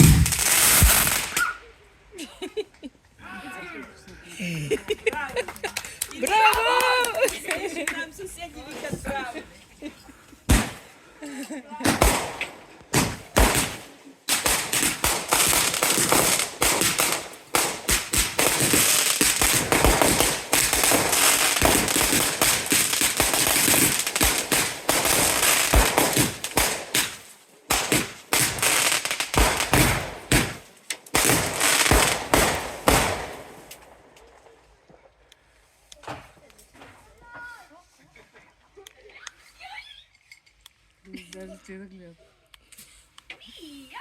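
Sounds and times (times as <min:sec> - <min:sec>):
fireworks bangs and crackles: 0:00.0 - 0:01.5, 0:10.5 - 0:11.0, 0:11.8 - 0:34.6.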